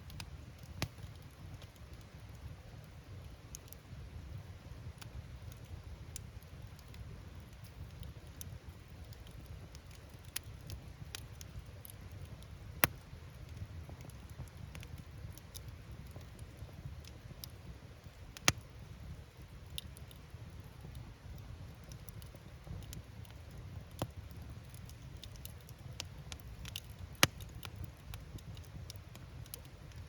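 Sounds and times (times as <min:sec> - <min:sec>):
low rumble of flames: 0:00.0 - 0:30.0
wood fire crackling: 0:00.0 - 0:30.0
firewood popping: 0:09.0 - 0:18.8, 0:19.6 - 0:30.0.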